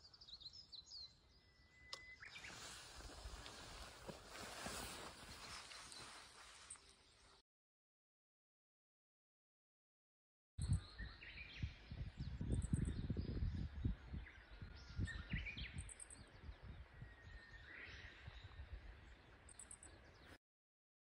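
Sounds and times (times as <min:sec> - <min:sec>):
bird chirps: 0:00.0 - 0:03.4, 0:10.6 - 0:20.4.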